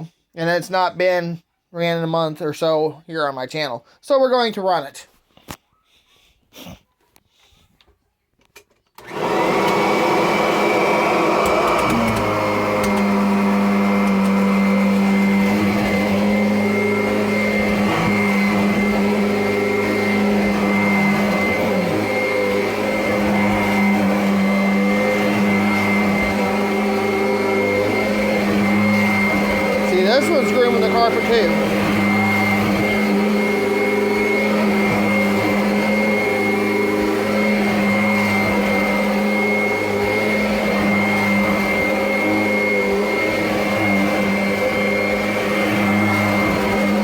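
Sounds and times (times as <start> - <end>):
vacuum cleaner motor whine: 9.0 - 47.0.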